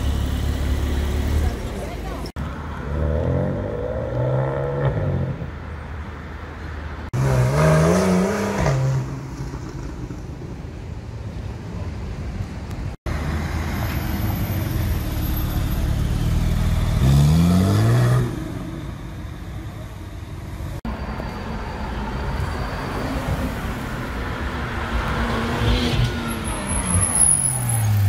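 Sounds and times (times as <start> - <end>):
another car engine: 0.0 - 3.1
traffic rumble: 0.0 - 28.0.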